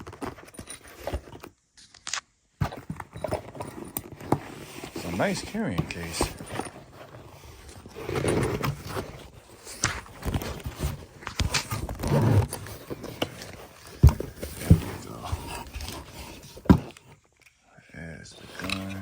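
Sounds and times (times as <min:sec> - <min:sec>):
case being unzipped: 0:02.6 - 0:17.0
fabric rustling and scraping: 0:02.6 - 0:17.2.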